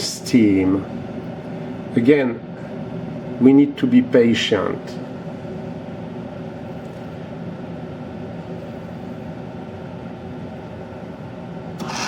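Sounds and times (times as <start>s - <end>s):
coffee maker steam noise: 11.8s - 12.0s.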